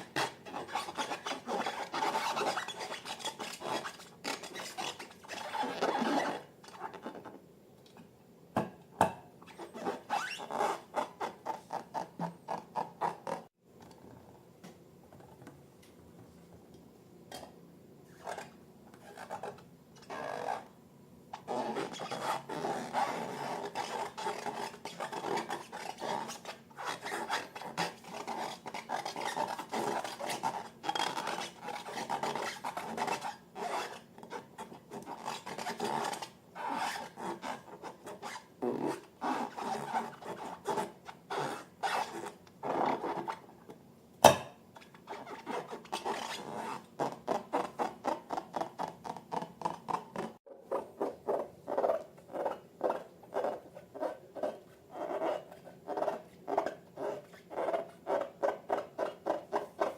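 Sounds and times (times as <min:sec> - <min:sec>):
slime rubbing and scraping: 0:44.8 - 0:59.9.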